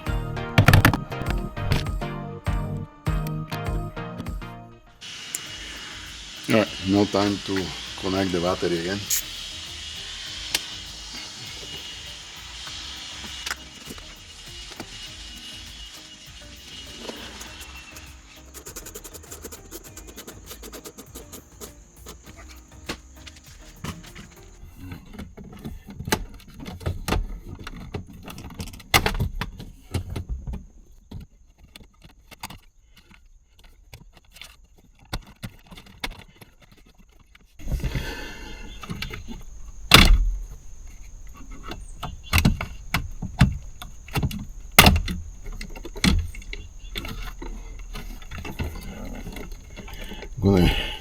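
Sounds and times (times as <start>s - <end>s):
steady hiss with high whine: 0.0s - 24.8s, 37.6s - 51.0s
hand tools clicking and rattling: 5.3s - 26.9s.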